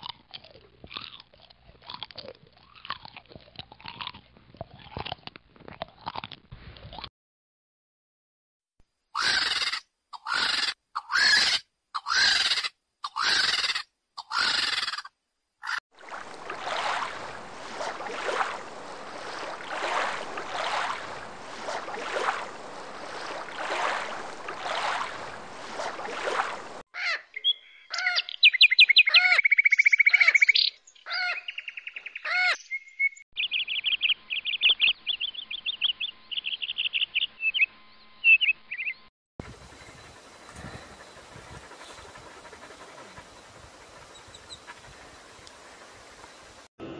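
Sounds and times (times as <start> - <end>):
short harsh animal calls: 9.2 - 15.8
bird whistles and trills: 27.4 - 30.8
high rapid bird chirps: 27.4 - 45.2.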